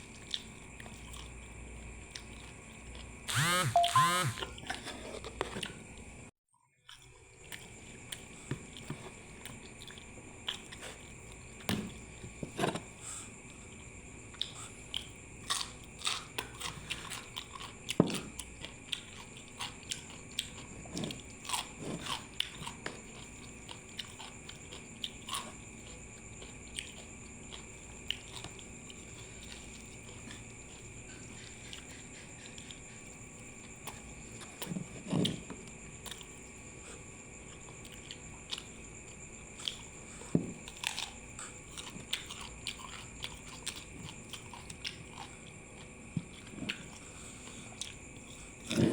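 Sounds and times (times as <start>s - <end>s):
chewing with wet clicks: 0.1s - 4.8s, 6.8s - 11.7s, 14.3s - 36.6s, 37.4s - 40.0s, 40.6s - 48.9s
crunchy bites: 3.3s - 4.5s, 14.4s - 30.4s, 39.6s - 48.9s.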